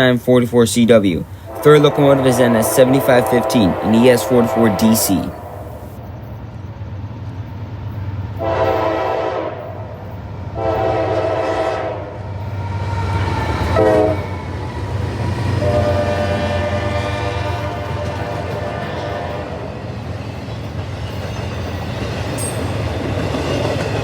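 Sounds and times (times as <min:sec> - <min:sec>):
locomotive rumble: 0:00.0 - 0:24.0
locomotive horn blasts: 0:01.4 - 0:06.0, 0:08.4 - 0:09.8, 0:10.6 - 0:12.1, 0:13.8 - 0:14.3, 0:15.6 - 0:19.6.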